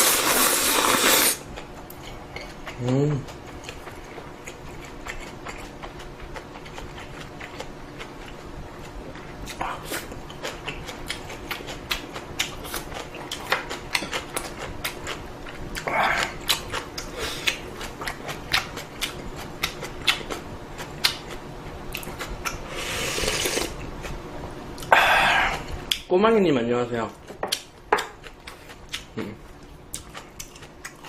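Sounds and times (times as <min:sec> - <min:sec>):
noodle slurping: 0:00.0 - 0:01.4, 0:22.7 - 0:23.8.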